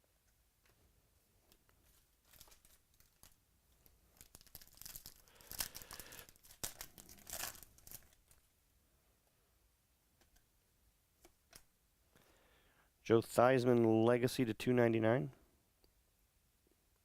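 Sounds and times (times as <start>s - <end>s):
card pack wrapper crinkling: 1.8s - 8.5s.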